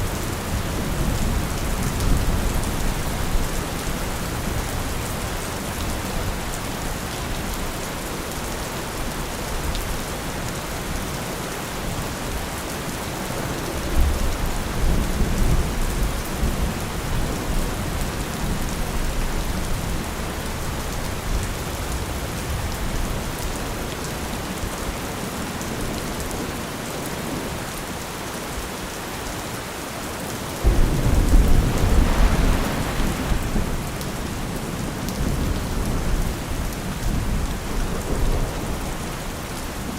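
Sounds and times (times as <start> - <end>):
steady rain: 0.0 - 39.9
distant thunder rumbling: 13.0 - 20.0, 30.6 - 39.0.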